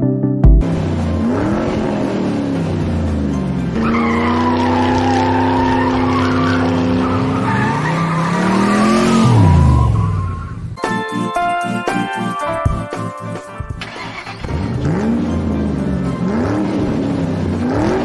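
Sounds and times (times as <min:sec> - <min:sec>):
race car engine revving: 0:00.6 - 0:10.8, 0:13.8 - 0:18.0
tyres squealing: 0:03.7 - 0:10.8.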